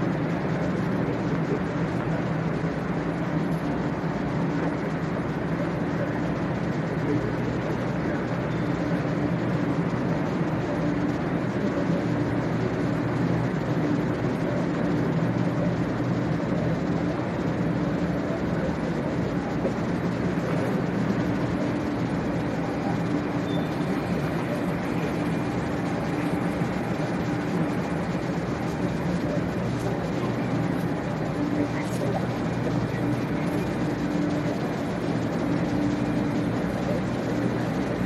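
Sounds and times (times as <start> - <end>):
station rush: 0.0 - 38.0
train equipment humming: 0.0 - 38.0.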